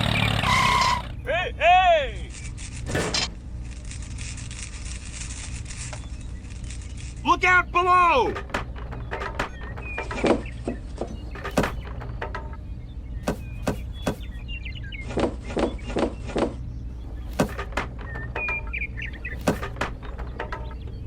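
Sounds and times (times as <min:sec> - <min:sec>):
birds chirping: 0:00.0 - 0:21.0
steady low hum: 0:01.1 - 0:21.0
irregular knocks and taps: 0:08.2 - 0:14.4, 0:17.2 - 0:20.9.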